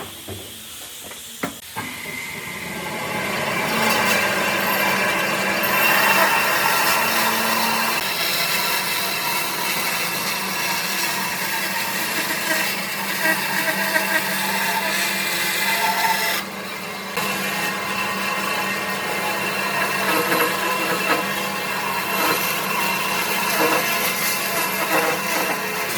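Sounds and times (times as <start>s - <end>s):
electric power tool motor humming: 3.8s - 15.1s, 17.2s - 25.9s.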